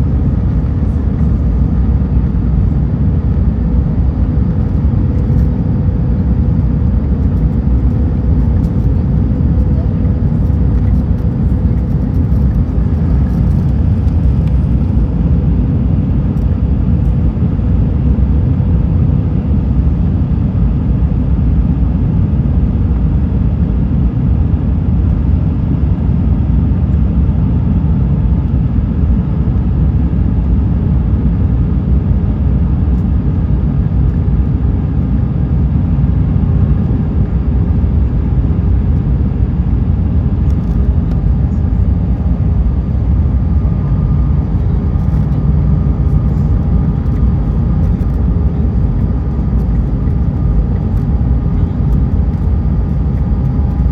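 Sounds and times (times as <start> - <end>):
aircraft cabin engine rumble: 0.0 - 53.9
faint steady hum: 0.0 - 53.9.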